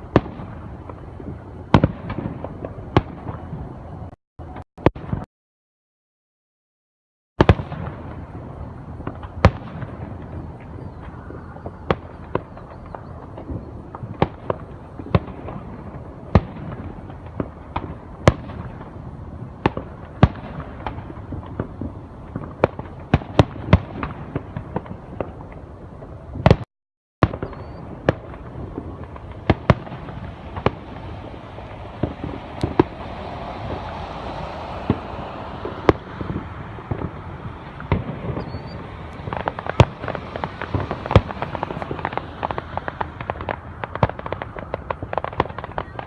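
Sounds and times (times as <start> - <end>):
fireworks bangs: 0.0 - 5.3, 7.4 - 46.0
background rumble: 27.4 - 46.0.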